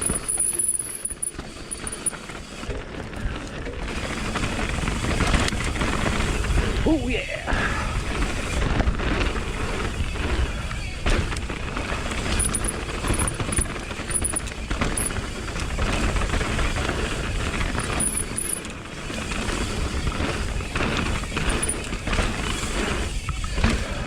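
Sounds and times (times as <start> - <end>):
bike rattling and knocking: 0.0 - 3.0, 11.0 - 24.0
wind and tyre noise: 0.0 - 24.0.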